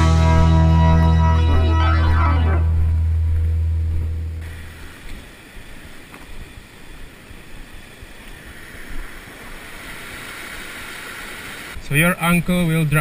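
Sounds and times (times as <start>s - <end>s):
background music bass note: 0.0s - 4.4s.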